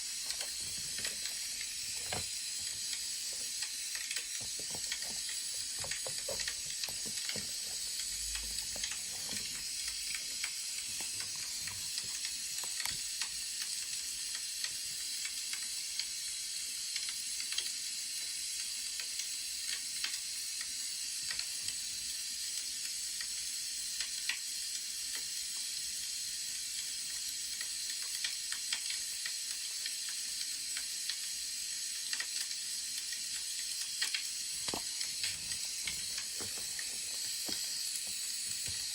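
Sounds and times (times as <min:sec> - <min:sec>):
wood fire crackling: 0:00.0 - 0:13.8, 0:34.0 - 0:38.9.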